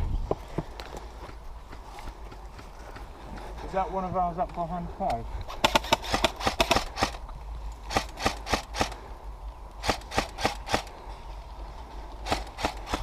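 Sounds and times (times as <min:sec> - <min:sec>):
airsoft gun shots: 0:05.6 - 0:07.2, 0:07.9 - 0:09.0, 0:09.8 - 0:10.9, 0:12.2 - 0:13.0.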